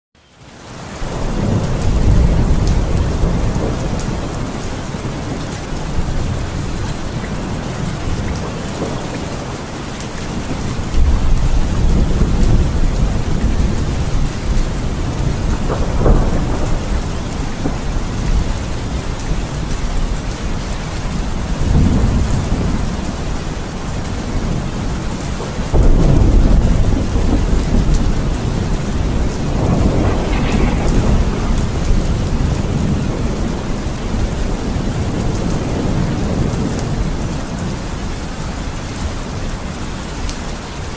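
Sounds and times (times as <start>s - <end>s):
steady rain: 0.2s - 40.9s
thunder rumbling: 1.0s - 39.4s
sharp thunder crack: 10.8s - 19.0s, 25.7s - 36.6s.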